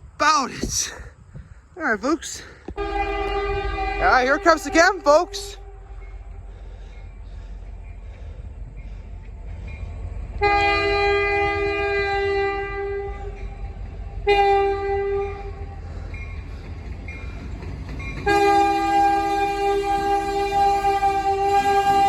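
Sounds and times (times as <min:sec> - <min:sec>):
locomotive air horn blasts: 0:02.8 - 0:06.4, 0:10.4 - 0:13.4, 0:14.2 - 0:15.7, 0:18.2 - 0:22.0.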